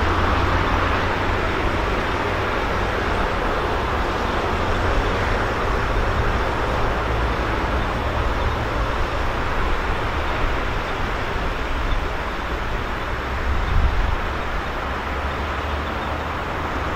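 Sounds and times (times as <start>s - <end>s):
road traffic: 0.0s - 16.9s
train rumbling along track: 0.0s - 16.9s.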